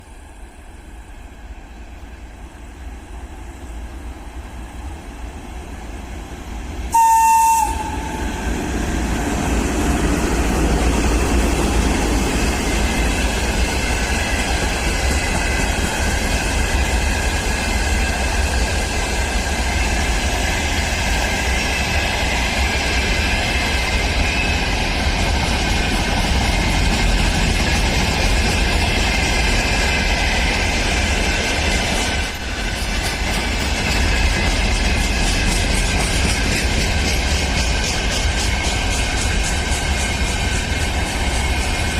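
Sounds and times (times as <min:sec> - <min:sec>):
train horn blast: 0:06.9 - 0:08.6.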